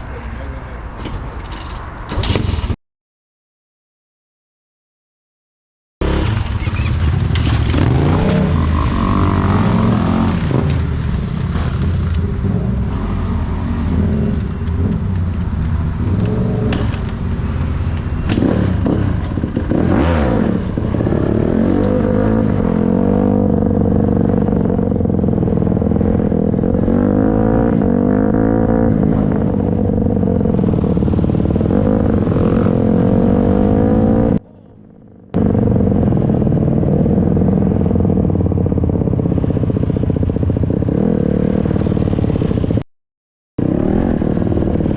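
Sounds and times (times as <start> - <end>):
dirt bike engine revving: 6.0 - 15.1, 16.0 - 25.1, 26.0 - 34.4
engine knocks and clatter: 6.2 - 8.4, 14.2 - 22.1.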